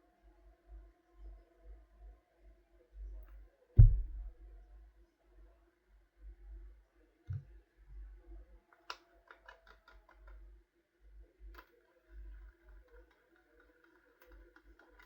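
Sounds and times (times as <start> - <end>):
soft knock: 3.8 - 4.4.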